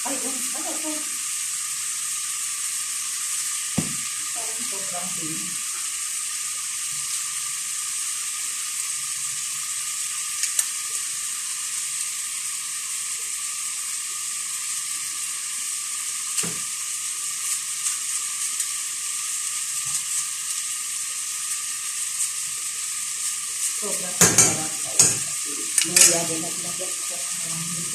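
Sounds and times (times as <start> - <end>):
food sizzling in hot oil: 0.0 - 27.9
utensil clicking against pan: 10.4 - 10.7, 24.2 - 26.3.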